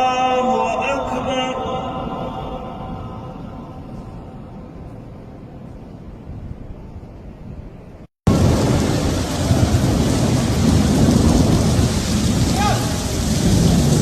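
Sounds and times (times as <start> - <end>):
heavy rain pouring: 8.3 - 14.0
thunder: 8.3 - 14.0.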